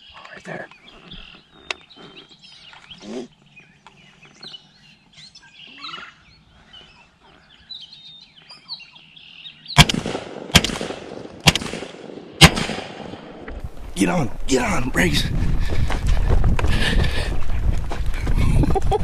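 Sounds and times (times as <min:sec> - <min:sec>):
birds chirping: 0:00.0 - 0:10.4, 0:13.1 - 0:19.0
shotgun blasts: 0:09.8 - 0:13.4.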